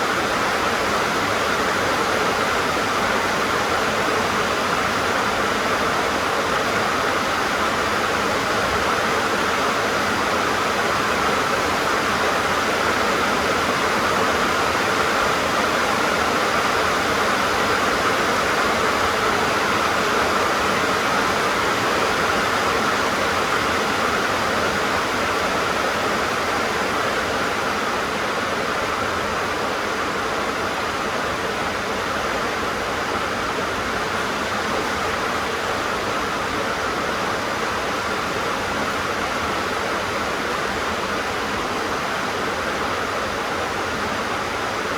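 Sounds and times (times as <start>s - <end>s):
heavy rain on a tin roof: 0.0s - 44.9s.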